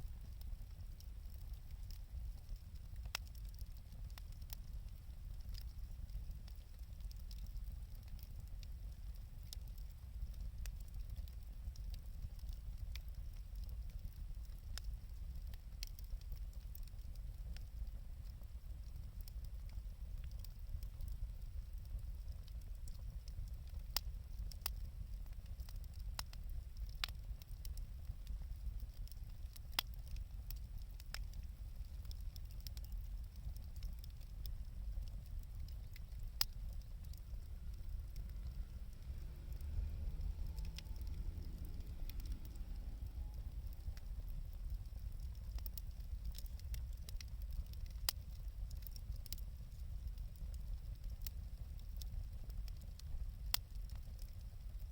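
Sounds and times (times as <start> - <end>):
wood fire crackling: 0.0 - 54.9
low rumble: 36.0 - 45.8.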